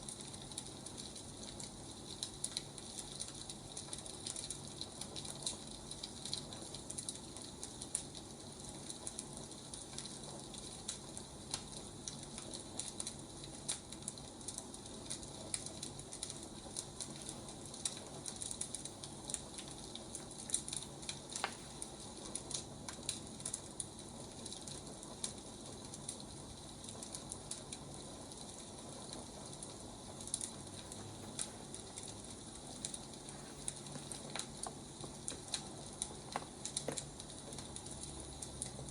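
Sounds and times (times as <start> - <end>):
firewood crackling and popping: 0.0 - 38.9.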